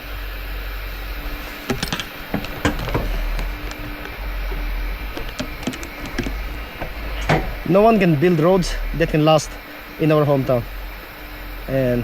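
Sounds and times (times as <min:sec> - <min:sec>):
faint hum: 0:00.0 - 0:12.0
moving vehicle rumble: 0:00.0 - 0:12.0
sharp knocks and rattles: 0:01.0 - 0:09.9.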